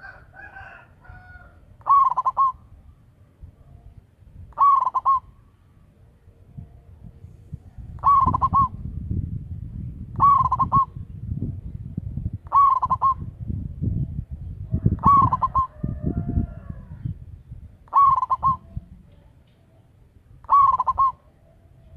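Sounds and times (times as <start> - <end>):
dove cooing: 0.0 - 2.8, 3.8 - 5.4, 6.5 - 9.0, 10.1 - 11.1, 12.4 - 13.4, 14.6 - 17.2, 17.8 - 21.9
low background rumble: 5.2 - 21.9.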